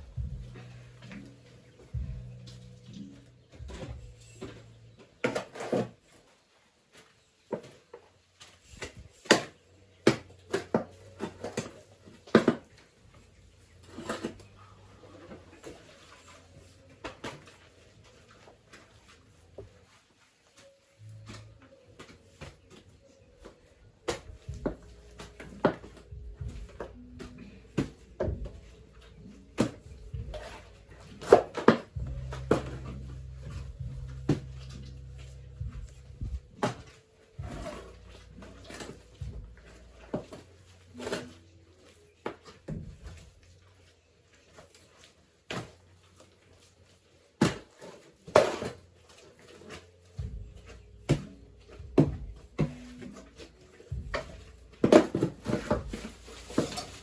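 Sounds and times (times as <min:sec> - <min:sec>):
low hum: 0:00.0 - 0:04.9, 0:31.9 - 0:40.1
tools knocking and scraping: 0:00.0 - 0:06.2, 0:08.6 - 0:18.4, 0:21.2 - 0:41.4, 0:47.4 - 0:57.0.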